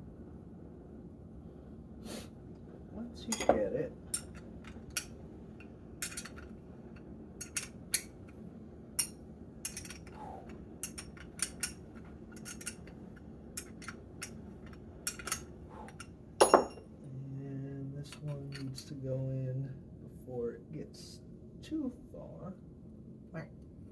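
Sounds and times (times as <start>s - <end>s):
small metal parts clinking: 3.3s - 5.1s, 6.0s - 6.6s, 7.4s - 8.2s, 9.0s - 10.2s, 10.8s - 13.0s, 13.6s - 16.8s.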